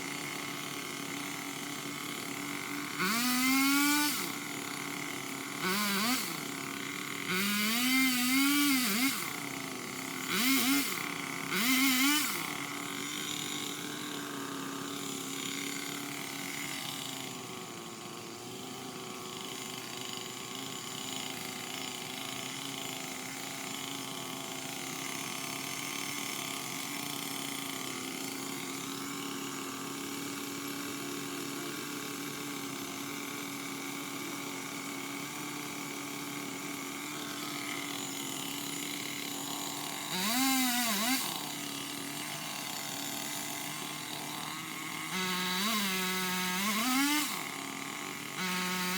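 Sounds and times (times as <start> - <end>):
motor drone: 0.0 - 15.4, 37.0 - 43.0, 43.6 - 48.9
pole saw revving: 0.0 - 31.6, 33.9 - 48.9.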